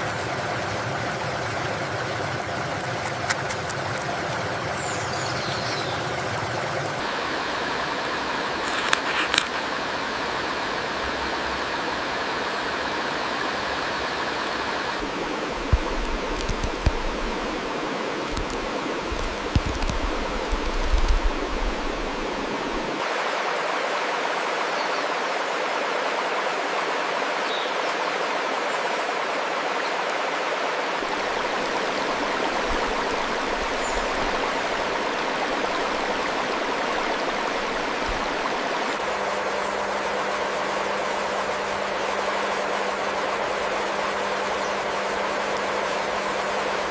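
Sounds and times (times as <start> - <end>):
low steady hum: 0.0 - 23.0, 31.0 - 46.9
steady rushing noise: 6.2 - 24.0, 30.8 - 46.9.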